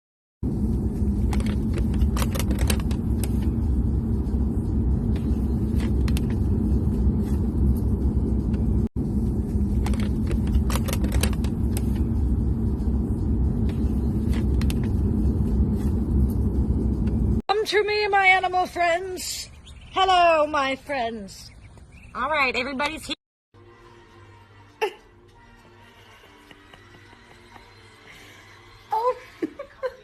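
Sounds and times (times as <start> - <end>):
motor vehicle rumbling: 0.4 - 23.1.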